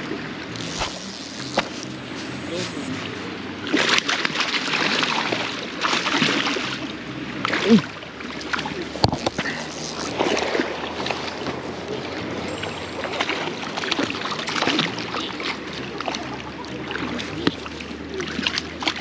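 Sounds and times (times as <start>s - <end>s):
small water splashes: 3.6s - 12.3s.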